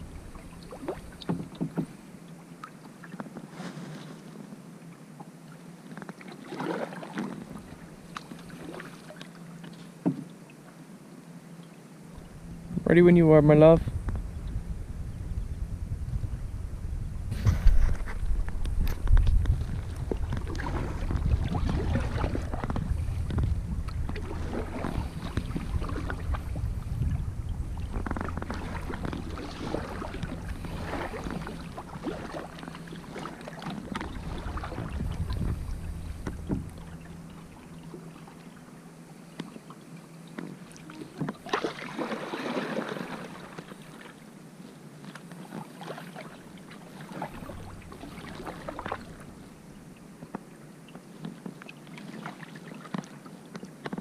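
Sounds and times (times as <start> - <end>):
heavy low rumble: 0.0 - 1.2, 12.2 - 38.6, 46.4 - 50.1
paddle splashing in water: 0.0 - 4.4, 5.2 - 10.7, 17.3 - 54.0.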